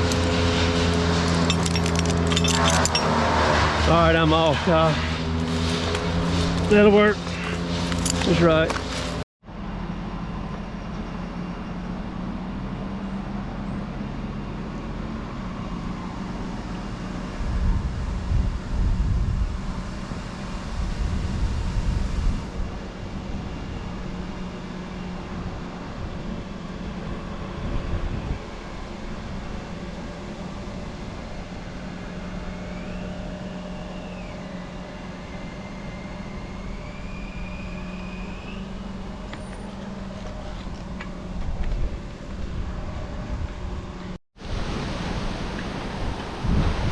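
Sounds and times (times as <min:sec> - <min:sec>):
heavy engine running: 0:00.0 - 0:46.9
faint wavering whine: 0:18.8 - 0:41.5.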